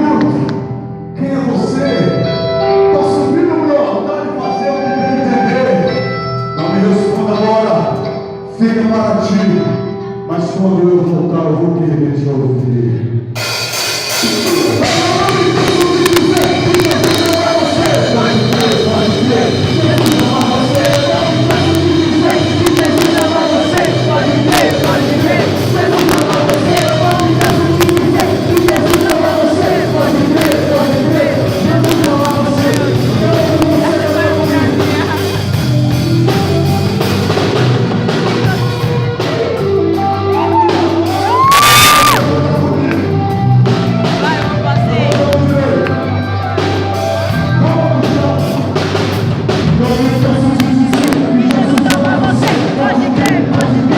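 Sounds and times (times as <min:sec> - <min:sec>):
loud live music: 0:00.0 - 0:53.9
drum kit: 0:11.0 - 0:53.9
voices singing: 0:14.2 - 0:49.0, 0:49.6 - 0:53.9
crowd shouts and whoops: 0:40.3 - 0:42.3.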